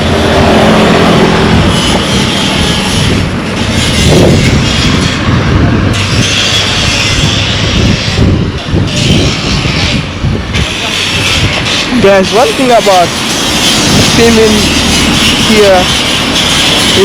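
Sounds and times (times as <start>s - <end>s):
vehicle engine note rising and falling: 0.0s - 4.4s
cars passing close by: 0.0s - 8.6s, 10.9s - 17.0s.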